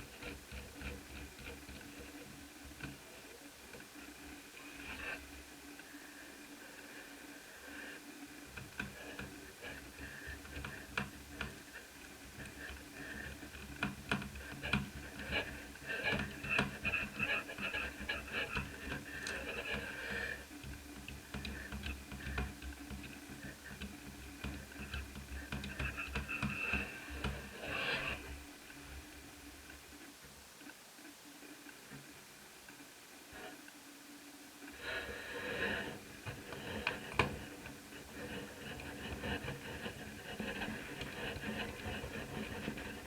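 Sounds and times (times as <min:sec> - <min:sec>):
laptop parts clicking and tapping: 0:20.6 - 0:28.1.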